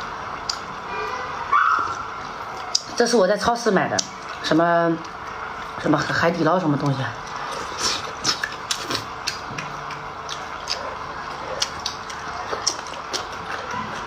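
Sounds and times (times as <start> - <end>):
person chewing and smacking: 0.4 - 0.7, 1.8 - 3.0, 6.8 - 14.0
wet mouth clicks: 7.8 - 10.9.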